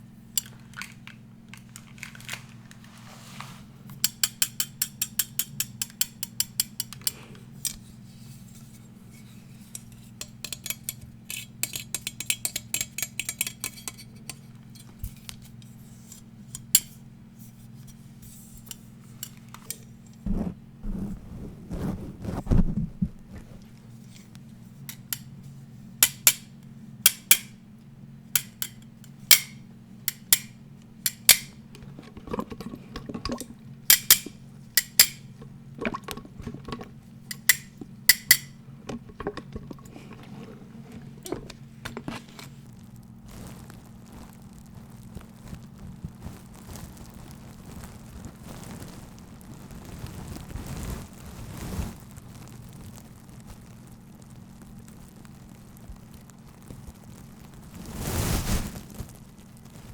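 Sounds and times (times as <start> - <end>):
low steady hum: 0.0 - 57.9
handling and rubbing: 0.5 - 4.0, 17.4 - 24.9, 31.6 - 42.7.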